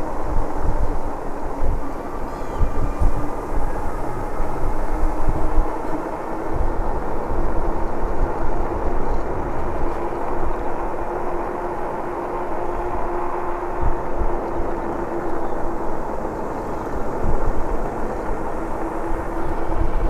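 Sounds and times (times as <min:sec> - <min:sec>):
e-bike drive hum: 0:00.0 - 0:20.0
wind buffeting microphone: 0:00.0 - 0:20.0.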